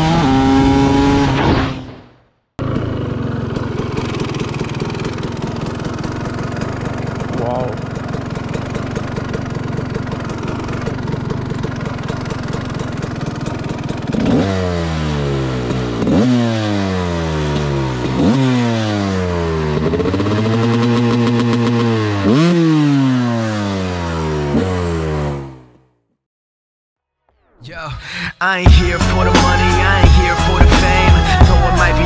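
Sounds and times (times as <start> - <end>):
motorcycle engine revving: 0.0 - 2.0, 2.6 - 25.9.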